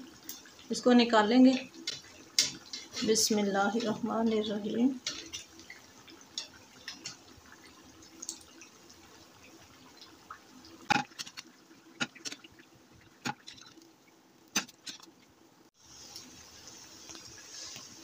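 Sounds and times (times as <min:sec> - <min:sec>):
food frying and sizzling: 0:00.0 - 0:18.0
tongs clacking on frying pan: 0:01.5 - 0:04.4, 0:05.0 - 0:07.3.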